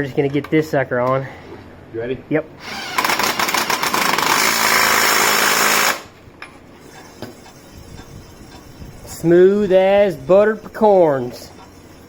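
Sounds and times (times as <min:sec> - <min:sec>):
impact wrench hammering: 0:02.8 - 0:06.1.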